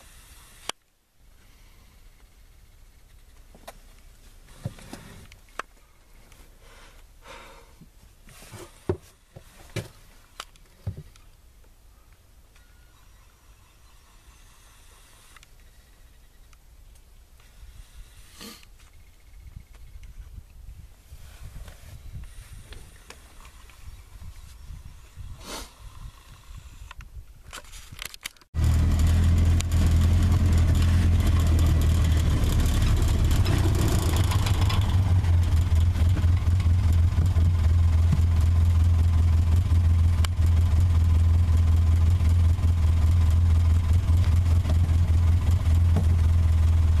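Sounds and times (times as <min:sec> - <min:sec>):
faint outdoor background: 0:00.0 - 0:47.0
vehicle engine idling: 0:28.6 - 0:47.0.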